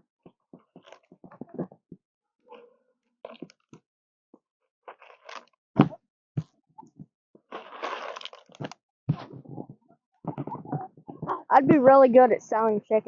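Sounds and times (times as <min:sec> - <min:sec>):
crunches and clicks of feed: 0:00.2 - 0:03.8, 0:04.9 - 0:11.5.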